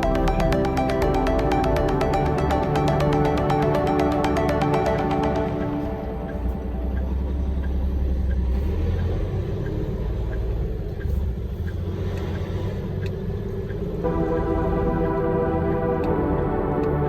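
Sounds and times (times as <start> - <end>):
music: 0.0 - 7.8, 14.0 - 17.0.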